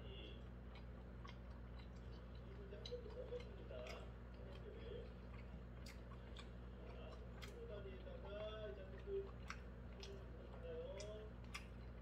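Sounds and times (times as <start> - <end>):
muffled television voices: 0.0 - 12.0
person chewing food: 0.0 - 12.0
steady low hum: 0.0 - 12.0.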